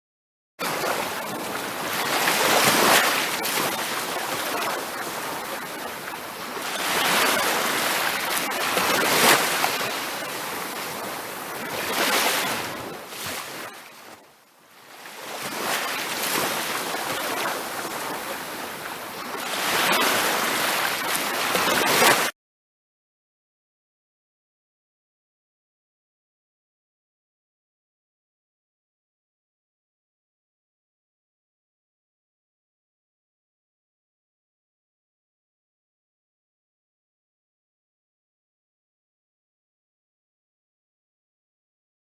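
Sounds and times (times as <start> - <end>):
waves breaking on a beach: 0.6 - 22.4.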